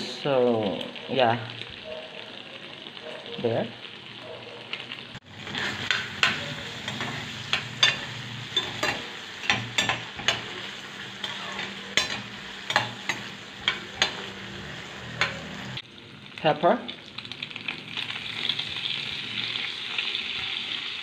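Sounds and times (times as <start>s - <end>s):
vegetables sizzling in a pan: 0.0s - 21.0s
spoon clinking and scraping a pan: 5.4s - 15.8s.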